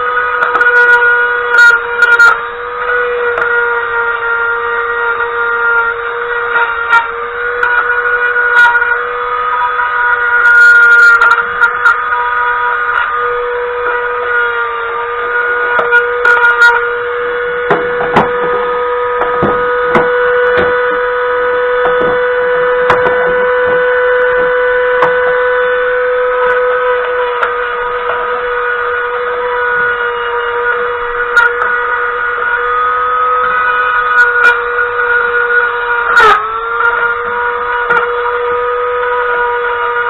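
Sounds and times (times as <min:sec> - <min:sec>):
power tool motor whining: 0:00.0 - 0:40.0
clicks and scraping knocks: 0:17.6 - 0:21.0, 0:21.8 - 0:25.4.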